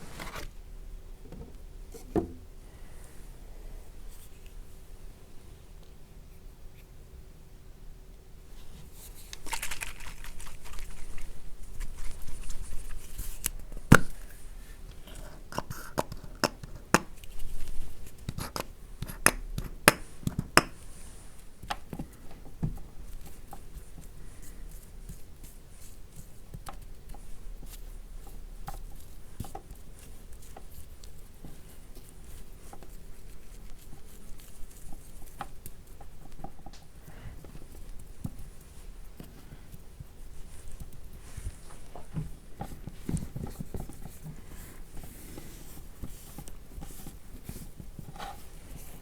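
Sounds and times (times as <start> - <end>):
hands tapping and clicking: 15.6 - 17.4, 18.2 - 20.8.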